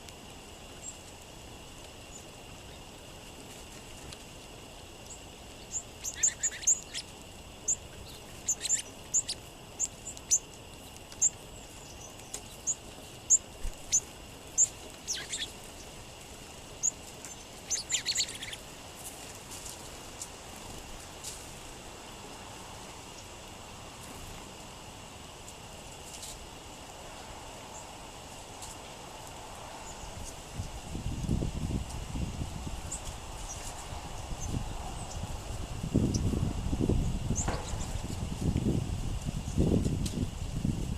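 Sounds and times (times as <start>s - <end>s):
songbirds chip calls: 5.0s - 16.2s, 16.8s - 18.7s, 32.8s - 38.2s.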